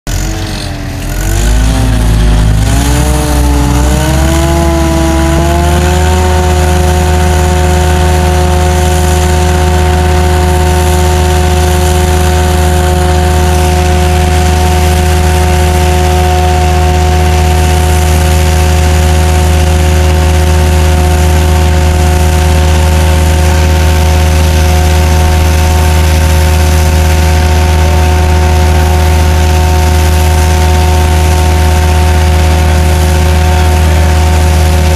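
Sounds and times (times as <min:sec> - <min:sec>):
jetter and vacuum machine drone: 0:00.1 - 0:34.9.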